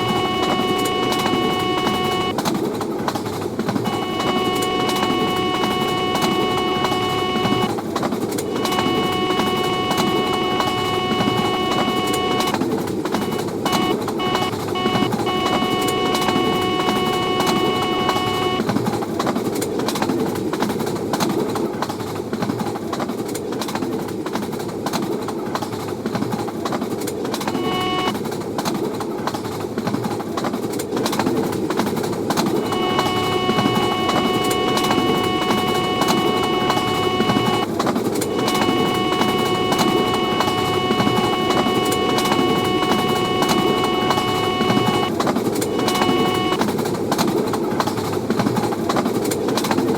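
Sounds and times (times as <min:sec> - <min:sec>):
high multi-note tone: 0:00.0 - 0:02.3, 0:03.9 - 0:07.7, 0:08.5 - 0:12.6, 0:27.6 - 0:28.1, 0:32.6 - 0:37.6, 0:38.2 - 0:46.6.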